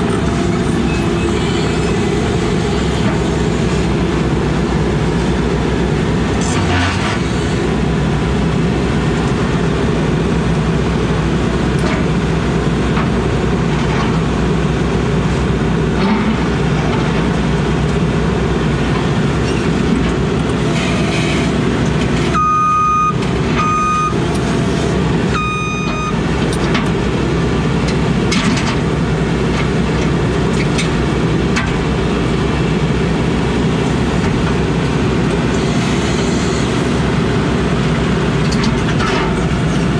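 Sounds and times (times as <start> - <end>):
excavator diesel engine running: 0.0 - 39.9
backup alarm beeps: 22.3 - 24.2, 25.4 - 26.2.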